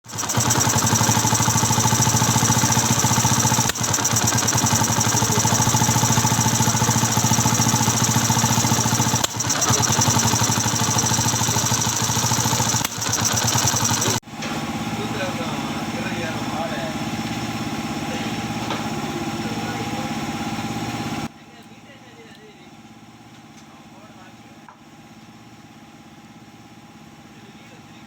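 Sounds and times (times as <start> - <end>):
motorcycle engine running: 0.0 - 21.3.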